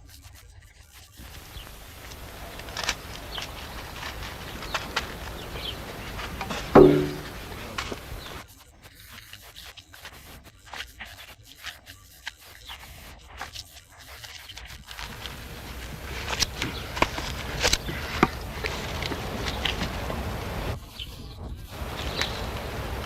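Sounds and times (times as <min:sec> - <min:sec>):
scraping and rubbing: 0:01.2 - 0:08.4, 0:14.1 - 0:20.8.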